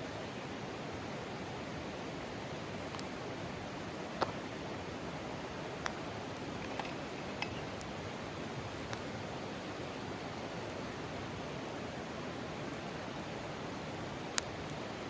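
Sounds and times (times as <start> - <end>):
light clicks and clinks: 6.4 - 7.9.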